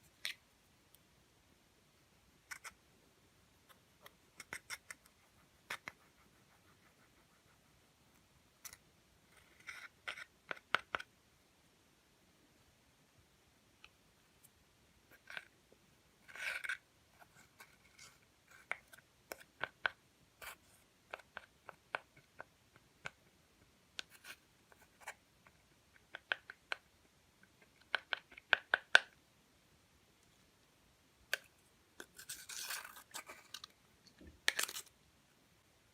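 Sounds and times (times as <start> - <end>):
scratchy rustle: 32.0 - 33.6.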